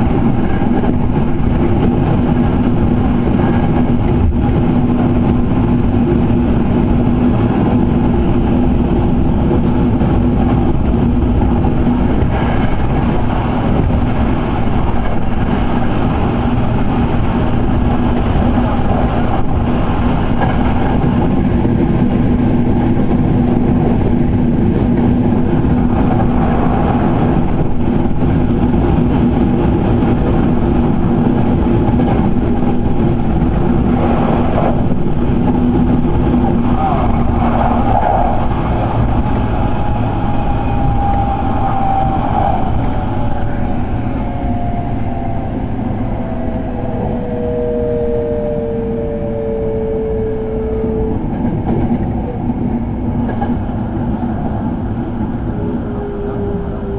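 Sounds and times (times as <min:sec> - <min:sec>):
steady low tone: 0:00.0 - 0:56.9
train wheels rumbling on track: 0:00.0 - 0:56.9.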